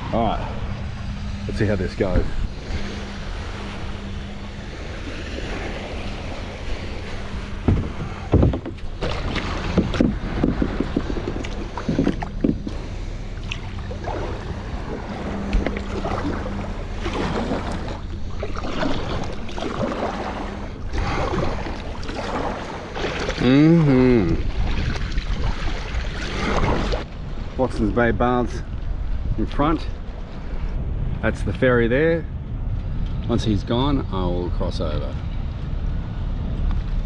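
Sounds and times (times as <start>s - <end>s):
low hum: 0.0s - 37.0s
paddle splashing water: 2.2s - 27.1s
sharp knocks: 7.6s - 12.8s.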